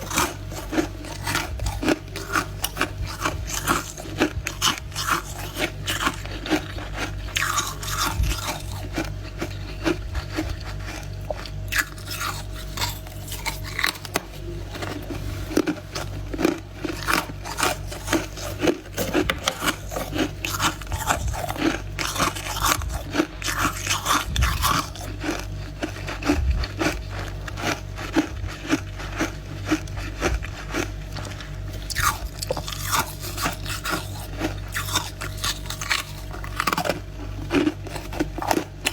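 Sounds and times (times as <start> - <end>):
frost being chewed crunching: 0.0 - 38.9.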